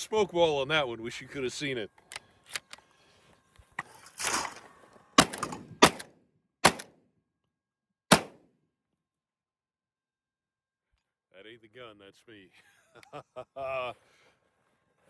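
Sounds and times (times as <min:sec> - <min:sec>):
shotgun shots: 0:05.2 - 0:06.9, 0:08.1 - 0:08.4.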